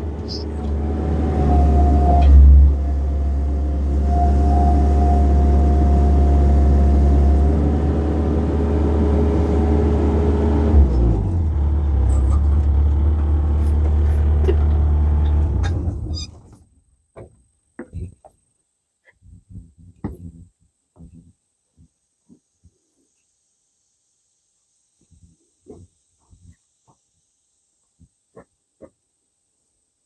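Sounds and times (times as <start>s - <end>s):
diesel engine running: 0.0s - 16.3s.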